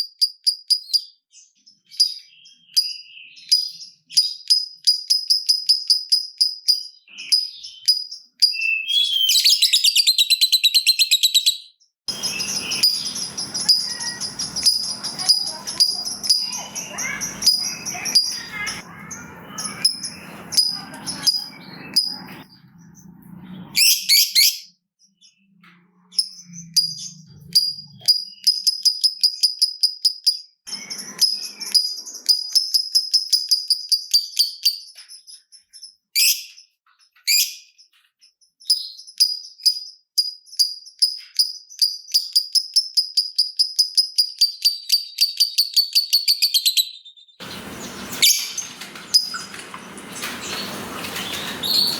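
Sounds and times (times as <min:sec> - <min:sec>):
lovebird chattering: 0:08.5 - 0:22.4, 0:47.4 - 0:51.9.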